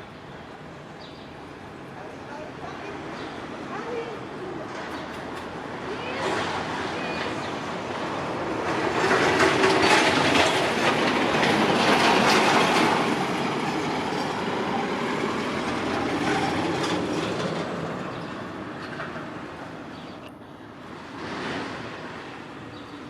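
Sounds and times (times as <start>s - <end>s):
train cars clattering over rails: 3.0s - 20.1s.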